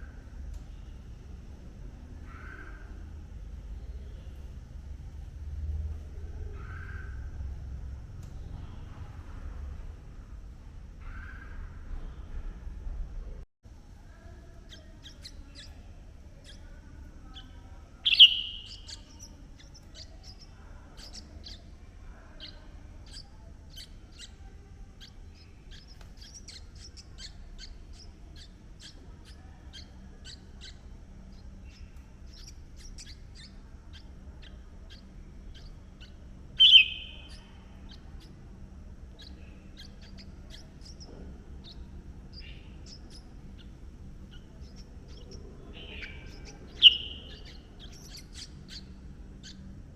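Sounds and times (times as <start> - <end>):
low background rumble: 0.0 - 49.9
loud short bird calls: 2.2 - 3.0, 11.0 - 11.8, 18.0 - 19.1, 36.6 - 37.7, 45.1 - 48.9
faint high quick chirps: 16.4 - 21.7, 25.0 - 38.4.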